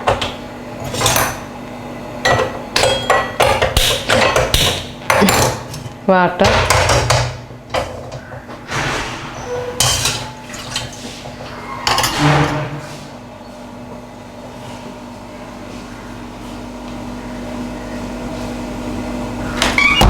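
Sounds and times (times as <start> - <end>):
pots and utensils clattering: 0.0 - 1.5, 2.2 - 12.9.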